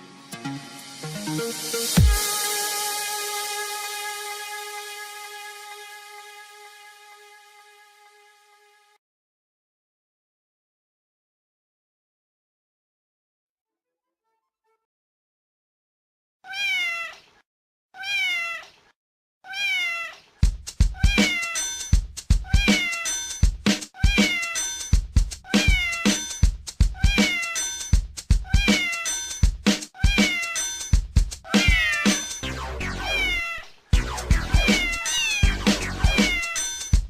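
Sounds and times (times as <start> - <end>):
music with thumping beat: 1.0 - 3.5, 20.4 - 33.0, 34.0 - 37.0
cat meowing: 16.4 - 17.4, 18.0 - 20.2, 20.9 - 21.6, 22.4 - 23.2, 23.9 - 24.6, 25.4 - 26.2, 26.9 - 27.6, 28.4 - 29.2, 30.0 - 30.6, 31.5 - 32.3, 33.0 - 33.8, 34.6 - 36.8.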